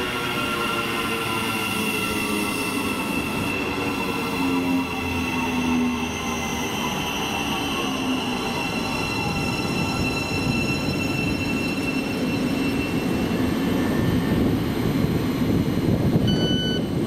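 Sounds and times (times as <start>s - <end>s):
train rumbling past: 0.0s - 17.0s
electronic beep: 16.3s - 16.9s.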